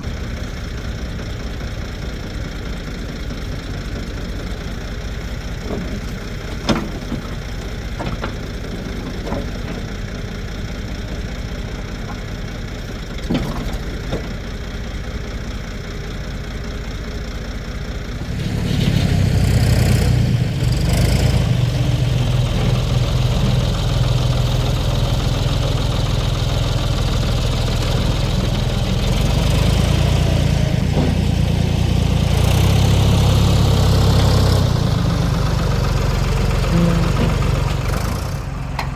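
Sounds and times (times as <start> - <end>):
backhoe diesel engine running: 0.0 - 38.9
sharp engine knocks: 5.5 - 10.1, 30.8 - 31.5.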